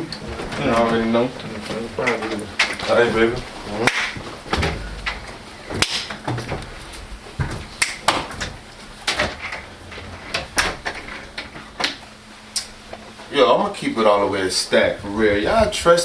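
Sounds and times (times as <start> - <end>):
faint low hum: 0.0 - 16.0
knocks and clicks: 4.5 - 8.4.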